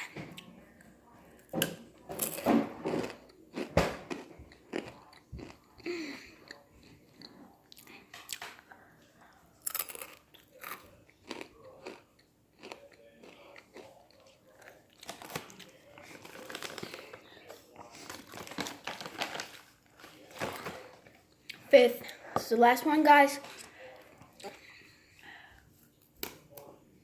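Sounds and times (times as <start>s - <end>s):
chip crunching and chewing: 2.2s - 8.6s, 9.6s - 17.1s.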